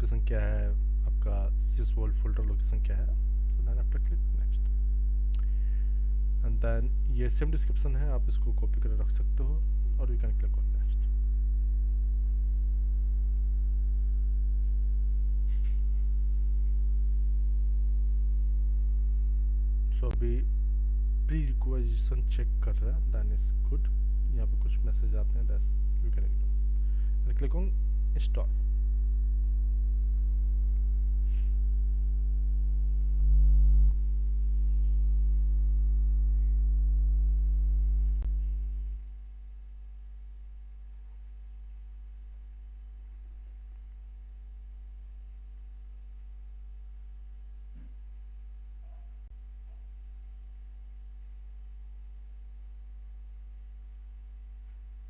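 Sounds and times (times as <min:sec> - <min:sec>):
electrical mains hum: 0:00.0 - 0:55.0
faint breath sound: 0:05.4 - 0:06.2, 0:26.8 - 0:27.3, 0:31.2 - 0:31.7.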